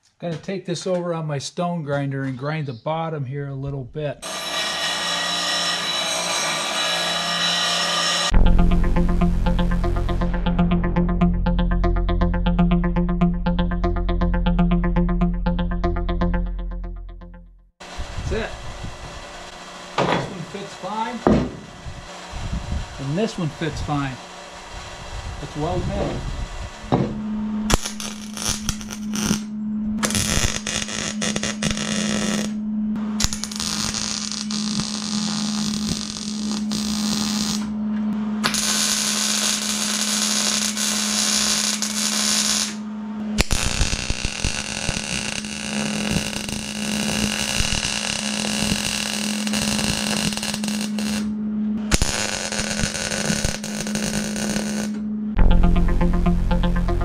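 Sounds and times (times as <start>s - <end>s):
welder crackling and hissing: 33.2s - 37.7s, 38.4s - 42.8s, 43.4s - 51.3s, 51.9s - 55.0s.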